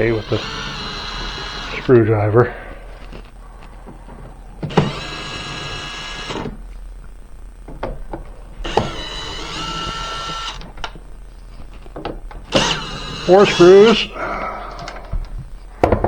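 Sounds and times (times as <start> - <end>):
cordless drill whirring: 0.0 - 2.1, 4.6 - 6.6, 8.6 - 11.0, 12.4 - 14.2.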